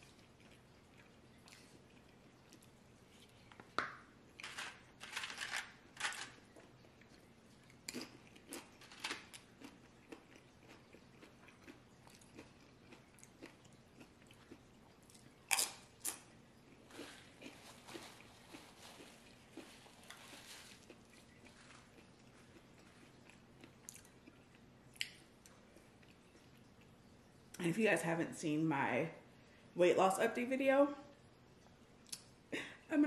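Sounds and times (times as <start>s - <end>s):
person crunching tortilla chips: 4.4s - 25.2s.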